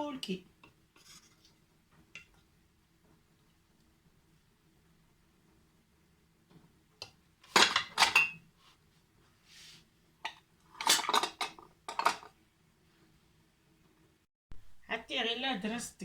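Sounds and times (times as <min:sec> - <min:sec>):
metal kitchenware clattering: 0:07.5 - 0:08.4, 0:10.3 - 0:12.3.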